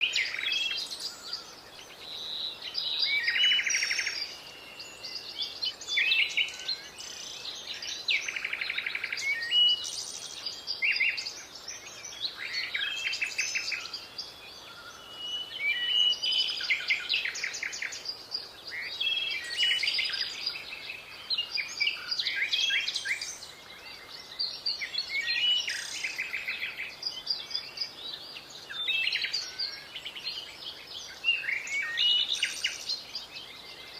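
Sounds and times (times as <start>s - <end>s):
birds chirping and trilling: 0.0s - 33.9s.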